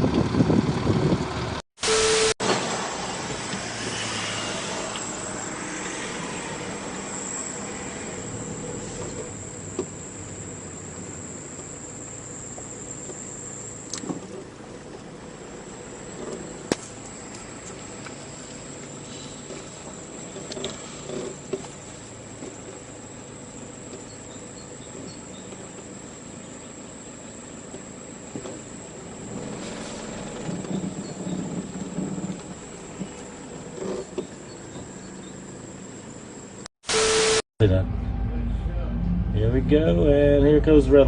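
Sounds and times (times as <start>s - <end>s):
vehicle engine running: 0.0s - 1.6s, 2.5s - 36.7s, 37.6s - 41.0s
high-pitched tone: 1.8s - 2.6s, 36.8s - 41.0s.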